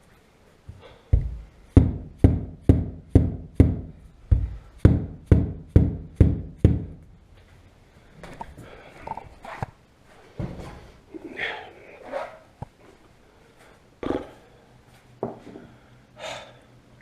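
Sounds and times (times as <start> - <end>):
dull heavy knocks: 1.1 - 7.0.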